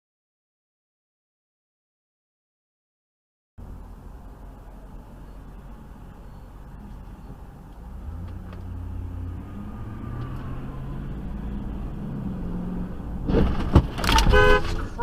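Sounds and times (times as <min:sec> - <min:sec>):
car engine and road rumble: 0:03.6 - 0:15.0.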